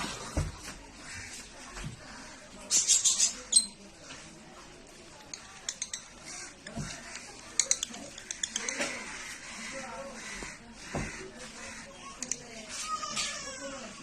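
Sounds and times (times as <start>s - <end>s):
lovebirds chirping: 2.7s - 3.8s.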